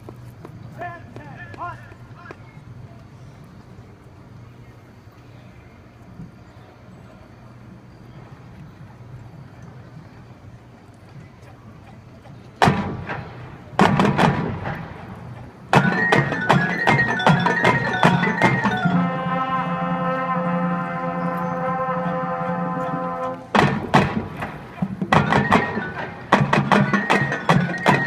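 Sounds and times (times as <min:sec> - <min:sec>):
sharp percussion hits: 0:12.6 - 0:20.4, 0:22.4 - 0:28.0
marching band playing: 0:12.6 - 0:28.0
pitched mallet notes: 0:15.7 - 0:19.9, 0:25.1 - 0:28.0.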